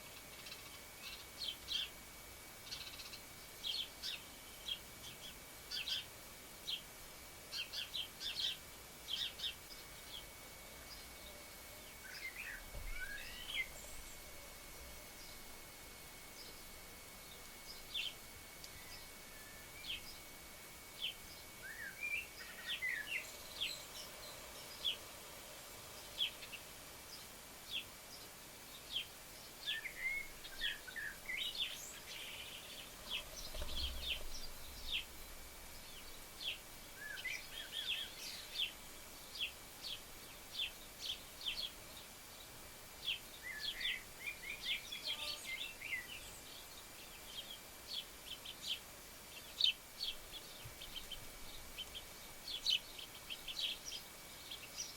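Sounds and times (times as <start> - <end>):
background hiss: 0.0 - 54.9
small birds chirping: 0.0 - 54.9.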